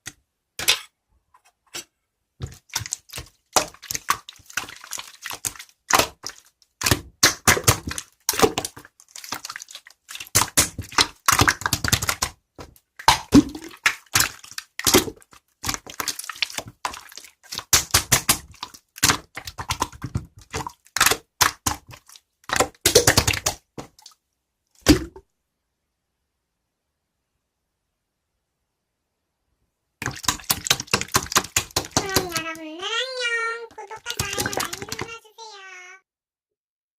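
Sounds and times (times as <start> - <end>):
slime squelching by hand: 1.8 - 24.2, 30.0 - 35.8.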